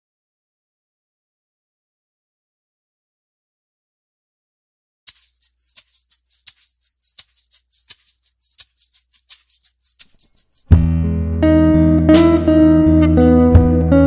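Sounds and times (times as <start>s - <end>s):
shaker rhythm: 5.1s - 10.8s.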